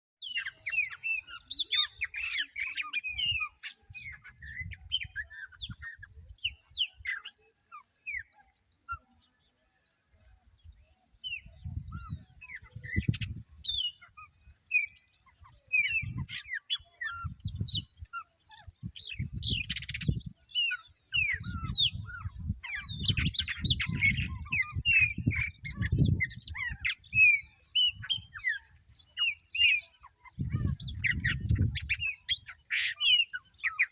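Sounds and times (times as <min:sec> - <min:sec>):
wild birds singing and calling: 0:00.2 - 0:33.9.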